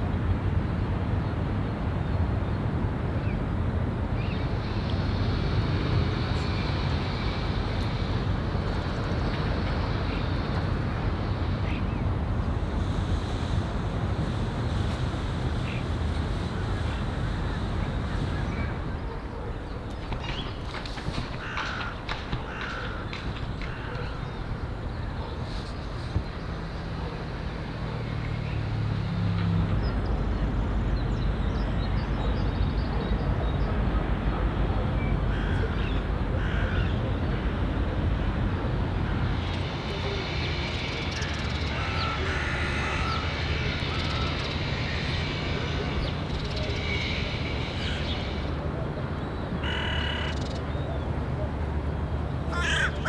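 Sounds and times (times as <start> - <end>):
wind and water rushing: 0.0 - 31.0
low engine rumble: 4.4 - 20.6, 22.4 - 49.8
faint distant voices: 33.1 - 53.0
bird calling: 52.5 - 53.0.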